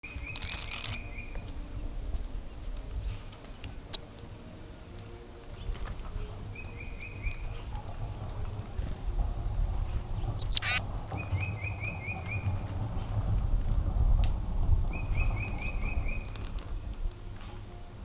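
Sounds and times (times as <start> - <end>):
bird trilling: 10.2 - 10.8
high bird chirps: 10.2 - 10.8.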